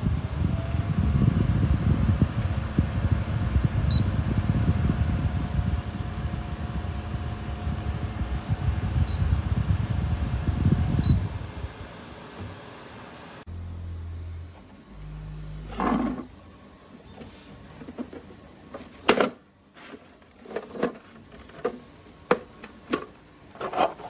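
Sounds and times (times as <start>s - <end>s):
air cooler fan running: 0.0s - 24.0s
motor whine: 13.5s - 18.0s.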